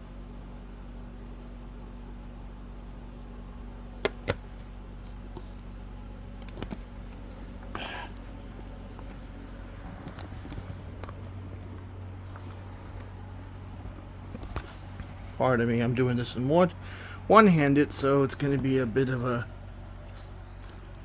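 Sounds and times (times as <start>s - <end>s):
steady low hum: 0.0s - 21.0s
rustling and light knocks: 6.3s - 15.4s.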